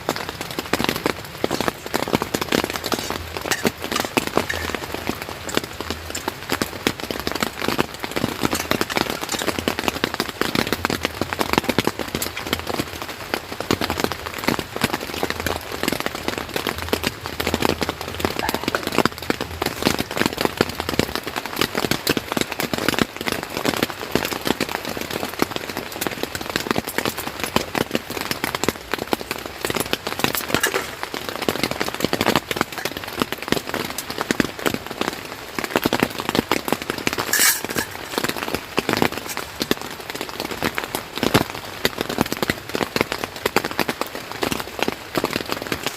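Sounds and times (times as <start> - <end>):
rain pattering on tent: 0.0 - 45.9.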